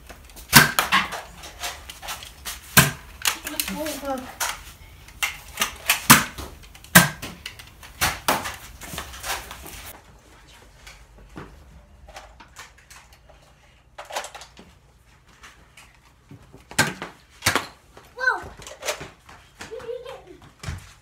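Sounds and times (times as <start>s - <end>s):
foam dart blasters firing: 5.6s - 7.3s.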